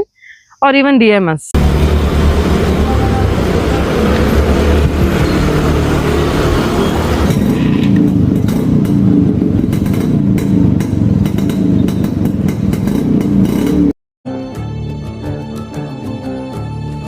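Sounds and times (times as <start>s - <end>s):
two-stroke motorcycle engine running: 1.6s - 13.9s.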